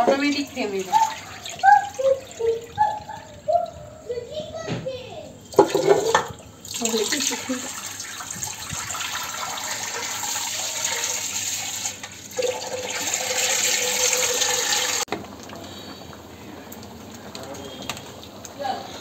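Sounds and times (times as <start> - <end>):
tap water running into sink: 5.6 - 15.1.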